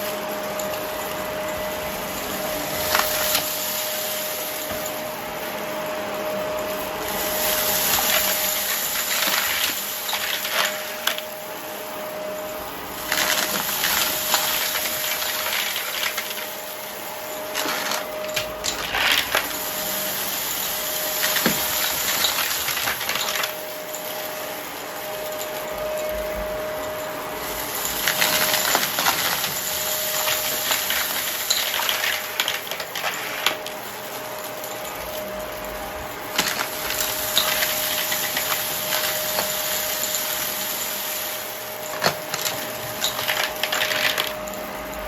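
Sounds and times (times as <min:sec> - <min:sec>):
vacuum cleaner running: 0:00.0 - 0:45.0
clicks and crackles: 0:27.8 - 0:35.5, 0:41.8 - 0:45.0.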